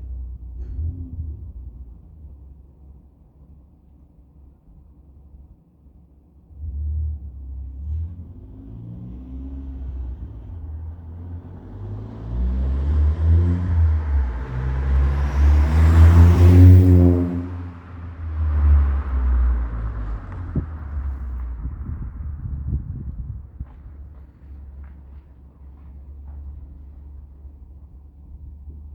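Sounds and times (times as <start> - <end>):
car exhaust rumbling: 0.0 - 2.9, 6.5 - 28.9.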